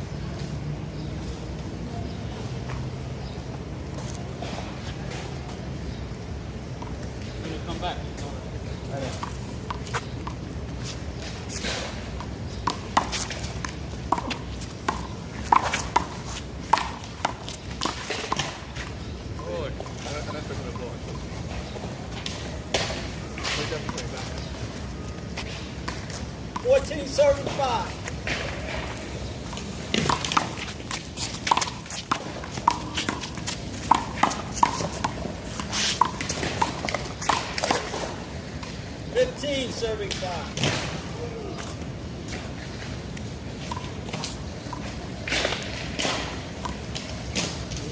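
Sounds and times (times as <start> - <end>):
footsteps on court: 9.1 - 19.0, 19.8 - 38.8
rubber ball slapping wall and pavement: 11.6 - 19.1, 25.8 - 38.8.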